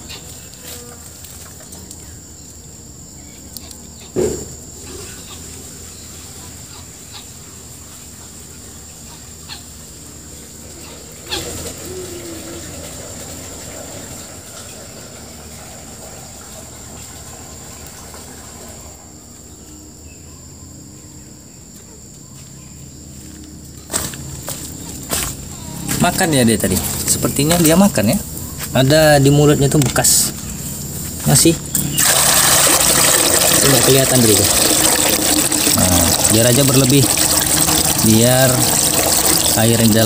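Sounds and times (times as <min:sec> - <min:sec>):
high whine: 0:25.2 - 0:40.0.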